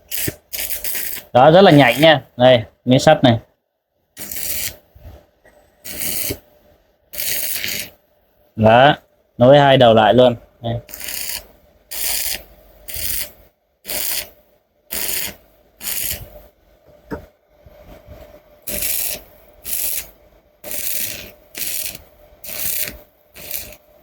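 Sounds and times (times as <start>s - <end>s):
welding arc crackling: 0.0s - 2.2s, 4.2s - 4.8s, 5.8s - 6.4s, 7.2s - 8.0s, 10.9s - 16.4s, 18.6s - 23.9s.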